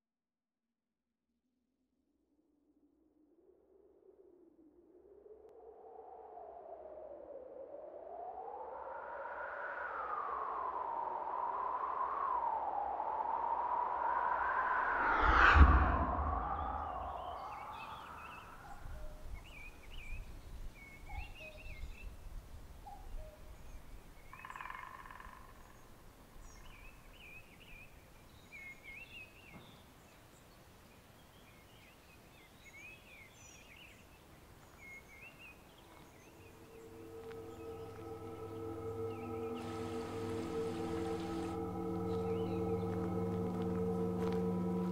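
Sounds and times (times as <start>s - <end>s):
whoosh: 13.8s - 18.6s, 36.4s - 44.9s
songbirds singing: 16.6s - 44.9s.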